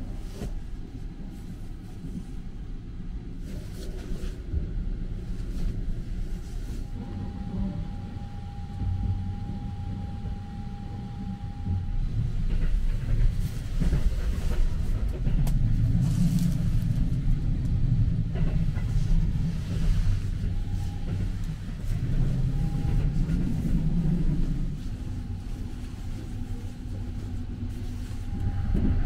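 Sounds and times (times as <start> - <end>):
train running rumble: 0.0 - 29.0
faint steady tone: 6.8 - 12.4.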